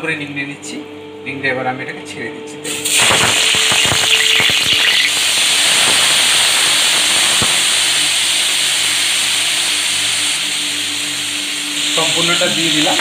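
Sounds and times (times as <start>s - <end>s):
banana stem sizzling in hot oil: 2.7s - 13.0s.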